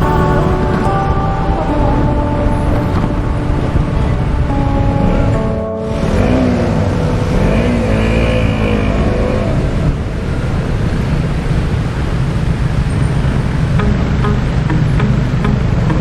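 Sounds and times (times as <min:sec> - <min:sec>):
motorcycle engine revving: 0:04.5 - 0:11.2.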